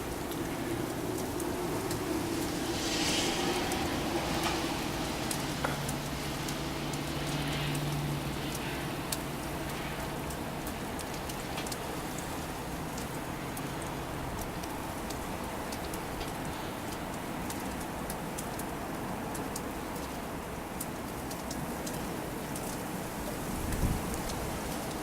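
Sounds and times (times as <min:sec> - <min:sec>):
gusty wind rushing: 0:00.0 - 0:07.3
snow pattering against microphone: 0:00.0 - 0:08.8.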